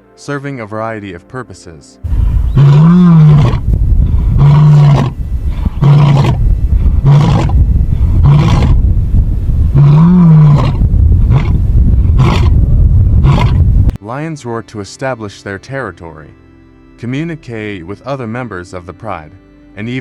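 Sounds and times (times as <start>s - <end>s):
lion roaring: 2.1s - 8.9s, 9.7s - 12.6s, 13.2s - 13.7s.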